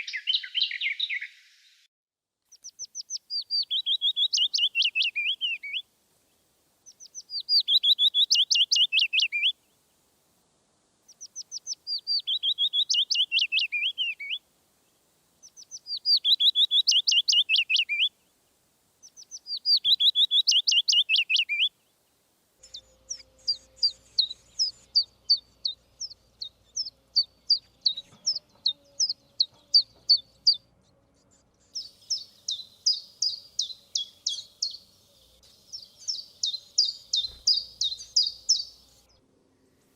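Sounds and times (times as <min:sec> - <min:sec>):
songbird song of falling notes: 0:00.0 - 0:01.9, 0:02.5 - 0:10.1, 0:11.0 - 0:30.6, 0:31.2 - 0:39.9
sharp high bird chirps: 0:02.5 - 0:05.8, 0:06.9 - 0:09.5, 0:11.1 - 0:14.4, 0:15.4 - 0:18.1, 0:19.0 - 0:21.7, 0:22.6 - 0:30.6, 0:31.3 - 0:39.1.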